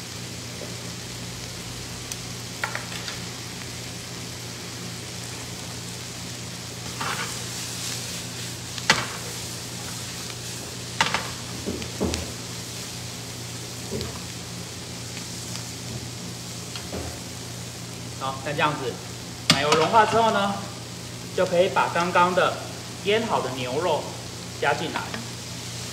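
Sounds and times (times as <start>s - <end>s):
onion and bacon sizzling: 0.0s - 25.9s
spatula clacking and scraping pan: 6.9s - 7.4s.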